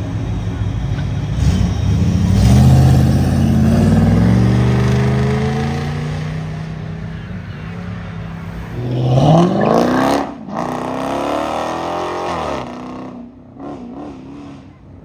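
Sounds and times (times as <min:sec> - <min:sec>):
car engine accelerating: 0:00.0 - 0:14.8.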